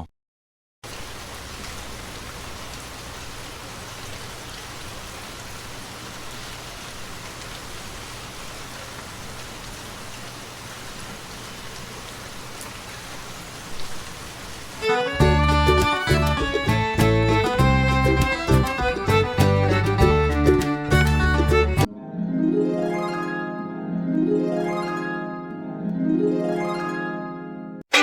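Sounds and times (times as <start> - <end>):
steady rain: 0.8 - 21.8.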